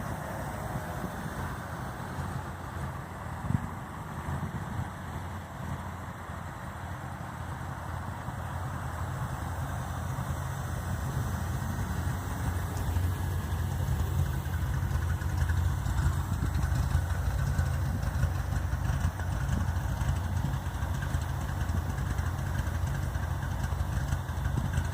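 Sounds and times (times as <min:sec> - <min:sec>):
car engine idling roughly: 0:06.7 - 0:24.9.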